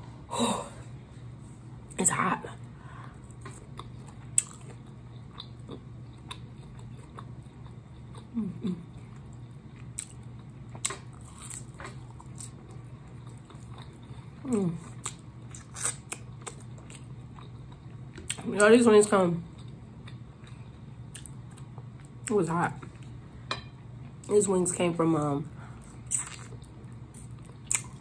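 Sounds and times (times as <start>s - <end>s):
person chewing and lip-smacking: 3.3s - 18.4s, 19.5s - 22.0s, 25.9s - 28.0s.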